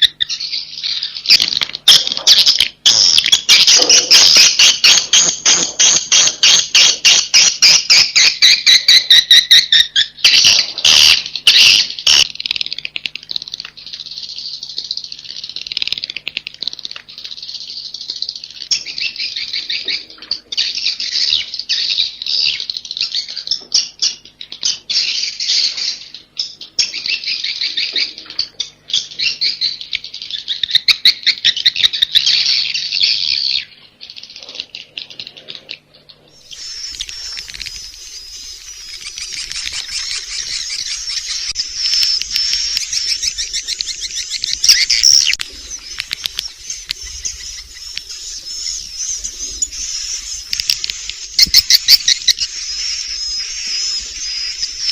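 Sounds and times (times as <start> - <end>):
fast clicking chirps: 0.0 - 54.9
swiftlets twittering chorus: 36.3 - 54.9.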